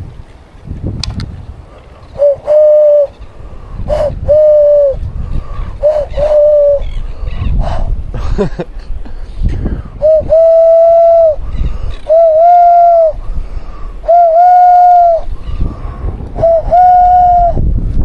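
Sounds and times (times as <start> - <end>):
wind rumbling on microphone: 0.0 - 18.0
man hooting bird call: 2.2 - 3.2, 3.9 - 5.0, 5.7 - 8.0, 10.0 - 13.2, 14.0 - 15.3, 16.4 - 17.6.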